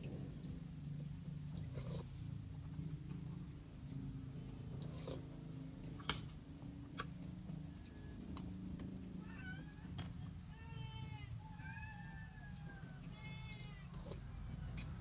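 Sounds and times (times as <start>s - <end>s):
cat meowing: 9.2s - 12.3s, 13.1s - 14.2s.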